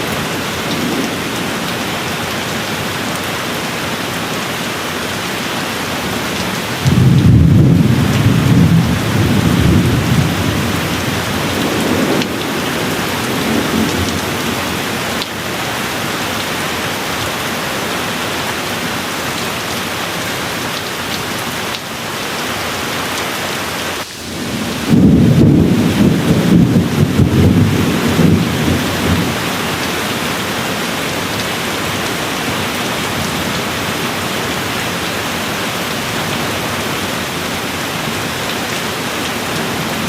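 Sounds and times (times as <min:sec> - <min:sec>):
steady rain: 0:00.0 - 0:40.0
thunder rumbling: 0:06.8 - 0:15.2, 0:24.0 - 0:32.0.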